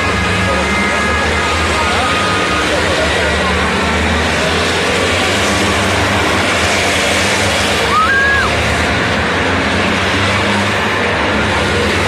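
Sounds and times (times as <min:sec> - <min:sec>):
diesel truck engines racing: 0:00.0 - 0:12.0
whistle-like rising tone: 0:07.9 - 0:08.6.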